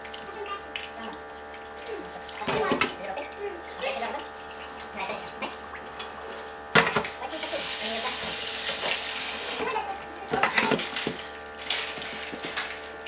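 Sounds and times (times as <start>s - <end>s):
knocks and clatter in sink: 2.4s - 3.0s, 6.7s - 7.2s, 9.6s - 11.3s.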